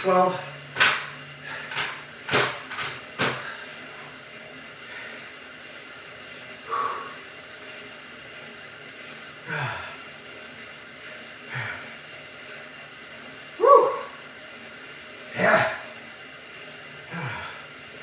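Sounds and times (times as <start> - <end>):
man grunting and breathing hard: 9.5 - 10.0, 15.4 - 15.9, 17.1 - 17.7.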